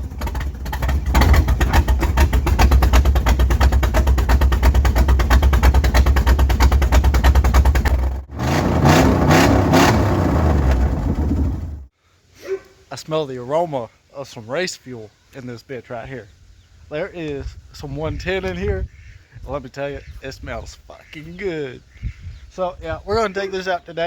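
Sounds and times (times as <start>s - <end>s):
loud lumpy engine idling: 0.0s - 11.9s.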